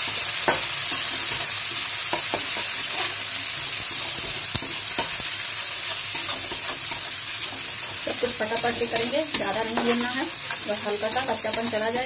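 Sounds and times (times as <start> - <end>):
garlic sizzling in hot oil: 0.0 - 12.0
spatula scraping pan: 0.5 - 12.0.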